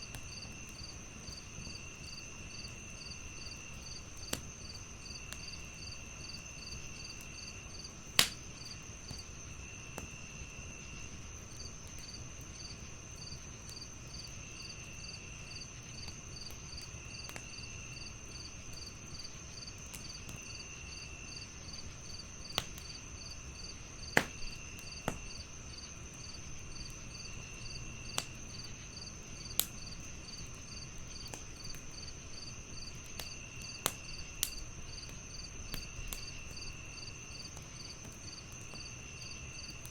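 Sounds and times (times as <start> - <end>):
crickets chirping: 0.0 - 39.9
wood fire crackling and popping: 0.0 - 39.9.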